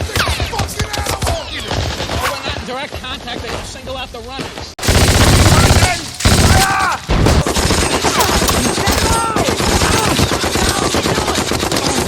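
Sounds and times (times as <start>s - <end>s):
machine-gun bursts: 4.8s - 12.0s
rifle shots: 4.8s - 12.0s.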